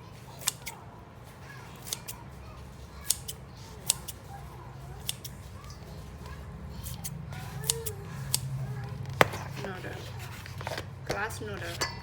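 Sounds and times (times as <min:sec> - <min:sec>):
scissors snipping noodles: 0:00.4 - 0:00.8, 0:01.8 - 0:02.2, 0:03.0 - 0:04.3, 0:05.0 - 0:05.4, 0:06.8 - 0:08.6.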